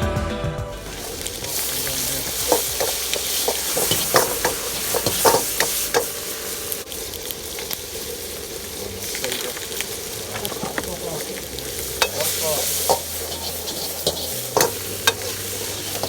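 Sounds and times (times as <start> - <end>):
food sizzling in a wok: 0.8 - 16.0
utensil knocking against wok: 1.4 - 6.1, 12.0 - 16.0.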